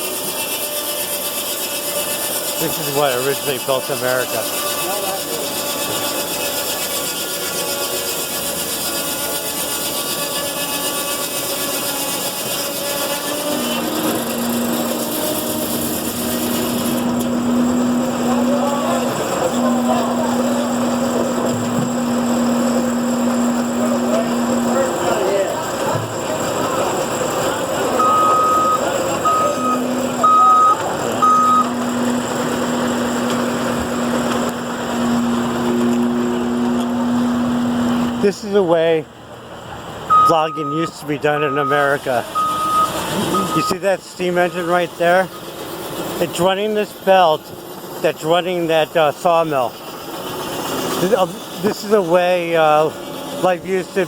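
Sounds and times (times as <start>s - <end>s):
high ringing whine: 0.0s - 39.0s, 40.1s - 54.0s
saw cutting through wood: 0.0s - 39.0s, 40.1s - 54.0s
machinery noise: 0.0s - 54.0s
vehicle backup alarm beeping: 27.9s - 33.4s, 40.1s - 44.8s.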